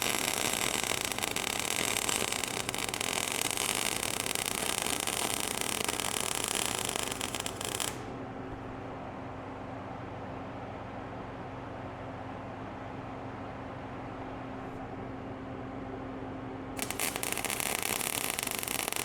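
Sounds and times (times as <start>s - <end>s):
welding arc crackling: 0.0s - 8.1s, 16.8s - 19.0s
steady low hum: 0.0s - 19.0s.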